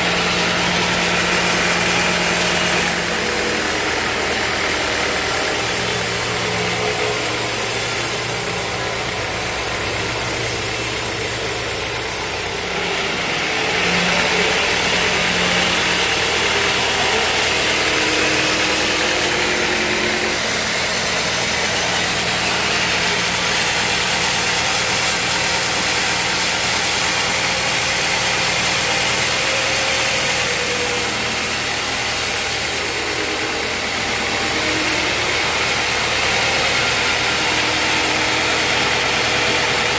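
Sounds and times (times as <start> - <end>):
sawmill machinery droning: 0.0 - 39.9
loud hiss: 1.1 - 12.8.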